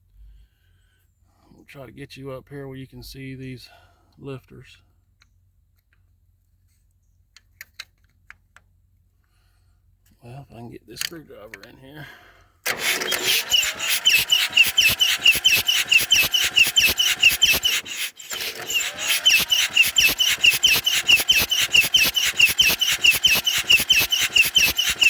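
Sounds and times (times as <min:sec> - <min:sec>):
diesel engine cranking: 0:12.6 - 0:25.0
starter motor whining: 0:12.6 - 0:25.0.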